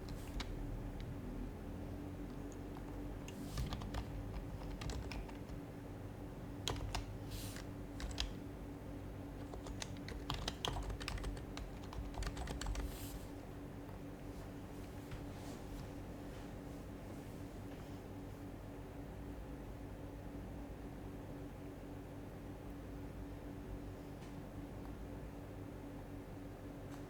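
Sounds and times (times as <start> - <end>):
keyboard typing: 0.0 - 1.2, 2.2 - 5.7, 6.6 - 8.5, 9.4 - 13.1.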